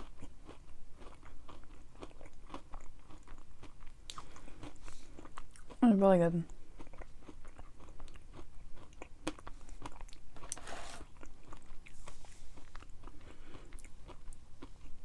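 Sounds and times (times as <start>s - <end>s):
chewing crunchy granola: 0.0s - 15.0s.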